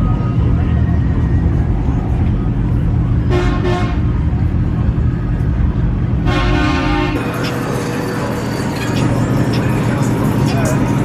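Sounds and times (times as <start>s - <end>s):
truck engines rumbling: 0.0s - 11.0s
vehicle horn honking: 3.3s - 4.0s, 6.2s - 7.4s.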